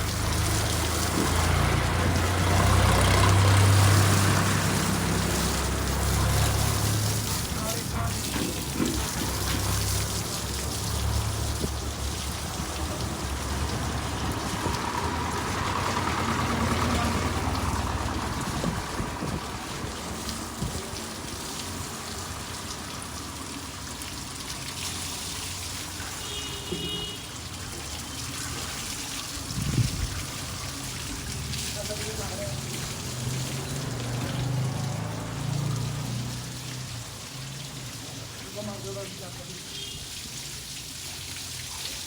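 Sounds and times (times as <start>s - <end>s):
tractor diesel engine rumble: 0.0s - 23.9s.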